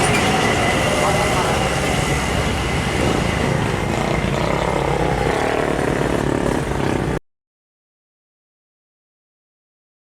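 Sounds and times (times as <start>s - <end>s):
heavy trucks passing on highway: 0.0s - 7.2s.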